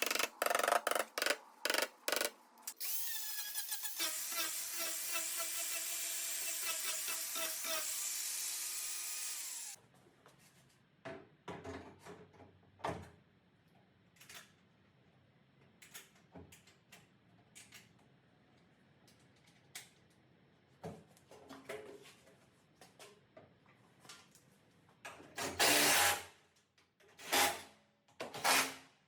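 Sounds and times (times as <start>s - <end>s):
power tool whining: 2.7s - 9.8s.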